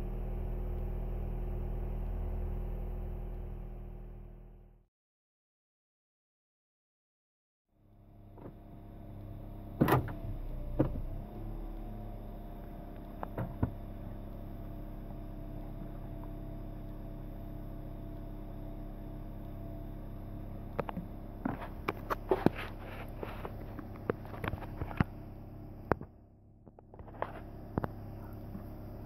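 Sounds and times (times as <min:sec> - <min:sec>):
car engine idling: 0:07.8 - 0:29.0
sharp clicks and knocks: 0:20.7 - 0:25.2.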